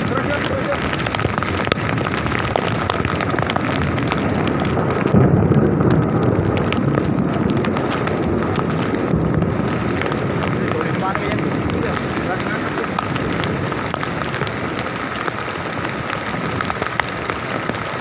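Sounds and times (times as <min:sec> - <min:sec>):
heavy rain: 0:00.0 - 0:18.0
thunder rumbling: 0:00.0 - 0:18.0.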